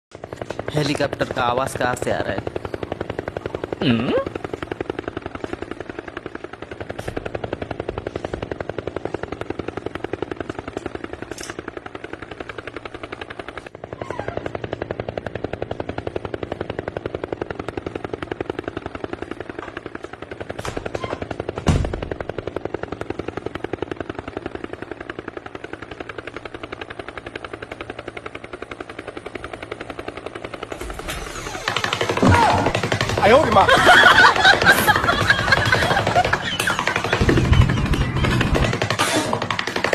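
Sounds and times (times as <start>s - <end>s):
rapid chopping pulse: 29.7s - 39.9s.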